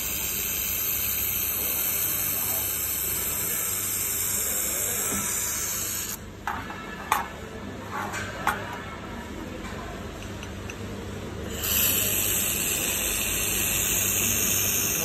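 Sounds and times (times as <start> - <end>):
laser welder hissing: 0.0 - 6.2, 11.5 - 15.0.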